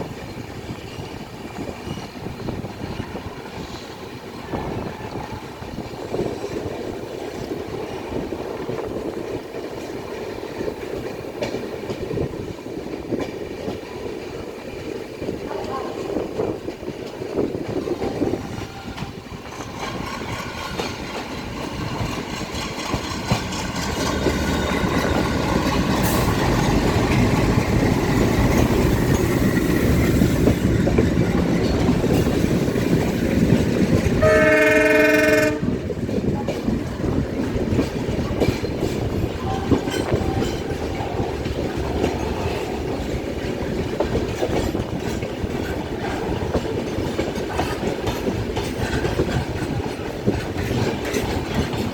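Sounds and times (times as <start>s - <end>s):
train rumble and wheel clatter: 0.0s - 51.9s
train horn: 17.9s - 19.4s, 34.1s - 35.9s, 39.4s - 41.0s.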